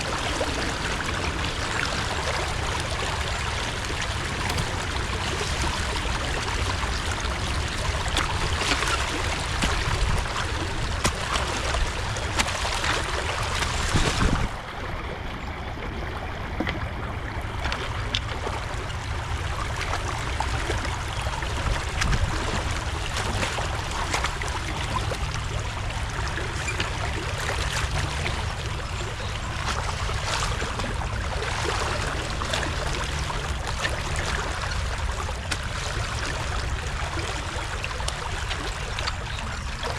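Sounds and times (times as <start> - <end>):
splashes: 0.0 - 14.6, 17.5 - 39.9
creek water rushing and trickling: 0.0 - 39.9
sharp knocks: 4.4 - 5.2.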